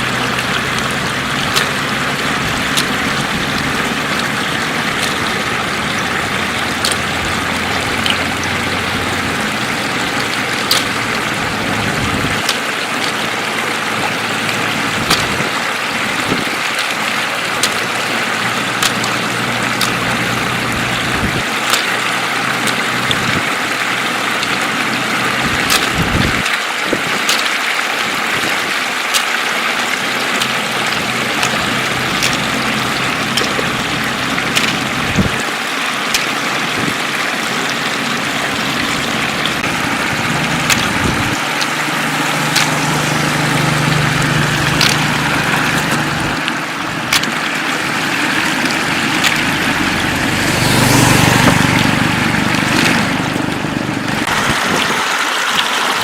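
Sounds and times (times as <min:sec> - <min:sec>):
floodwater running: 0:00.0 - 0:56.0
sharp clicks: 0:10.1 - 0:11.3, 0:14.5 - 0:15.6, 0:17.6 - 0:18.2, 0:18.8 - 0:20.3, 0:27.2 - 0:27.7, 0:30.1 - 0:35.5, 0:40.7 - 0:41.8, 0:43.5 - 0:50.2
low hum: 0:36.5 - 0:54.4.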